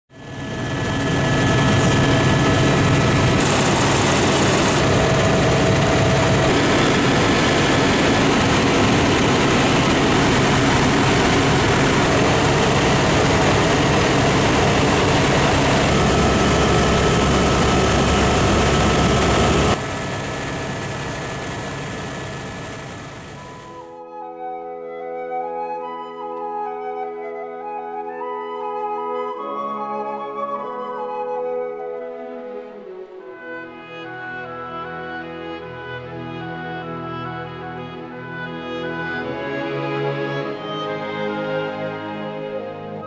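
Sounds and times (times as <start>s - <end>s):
helicopter engine and rotor noise: 0.1s - 24.0s.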